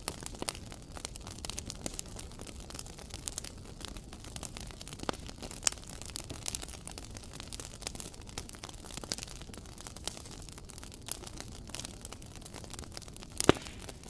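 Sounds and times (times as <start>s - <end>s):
low fire rumble: 0.0s - 14.0s
wood fire crackling: 0.0s - 14.0s.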